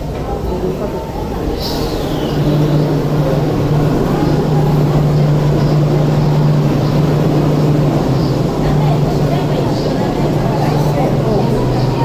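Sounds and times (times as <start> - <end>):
train cars rumbling: 0.0 - 12.0
steady low hum: 0.4 - 12.0.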